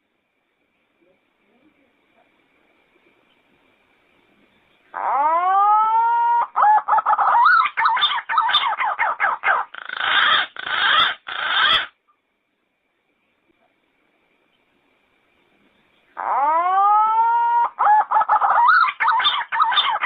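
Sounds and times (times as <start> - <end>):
pigeon calling: 4.9 - 12.0, 16.2 - 20.0.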